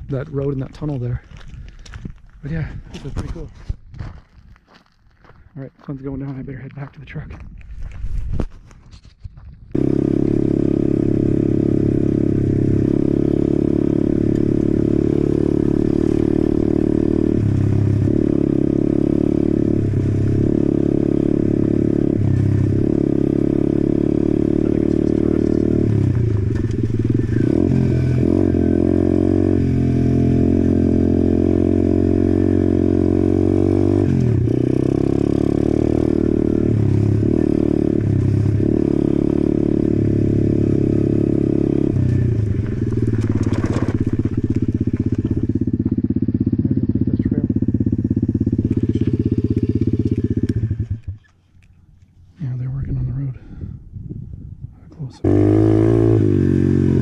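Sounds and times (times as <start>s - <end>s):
motorbike engine revving: 9.7s - 51.3s, 55.2s - 57.0s.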